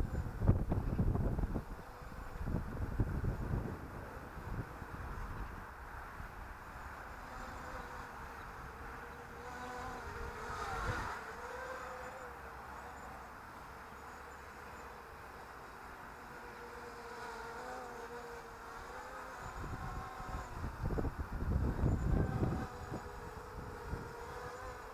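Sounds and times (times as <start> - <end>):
wind rumble on microphone: 0.0 - 6.6, 7.3 - 11.2, 19.3 - 24.9
quadcopter motors buzzing: 0.0 - 24.9.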